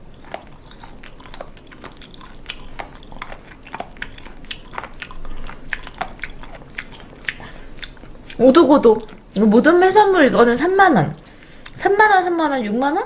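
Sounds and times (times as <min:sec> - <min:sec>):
person chewing with mouth clicks: 0:00.0 - 0:09.6, 0:11.1 - 0:11.8.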